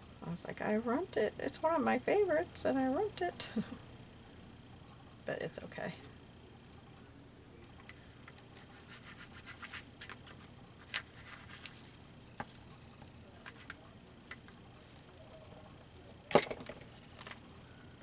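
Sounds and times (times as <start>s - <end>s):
paper rubbing scratchy strokes: 8.6s - 12.6s.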